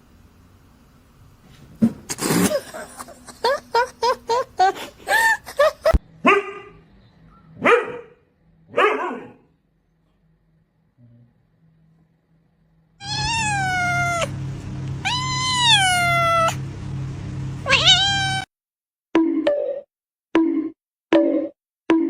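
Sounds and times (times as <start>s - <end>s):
dog barking: 6.2s - 6.8s, 7.5s - 9.5s.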